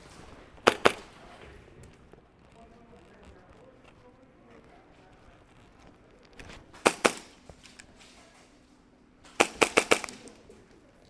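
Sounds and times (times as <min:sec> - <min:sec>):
airsoft guns firing: 0:00.5 - 0:01.4, 0:06.7 - 0:07.6, 0:09.2 - 0:10.7.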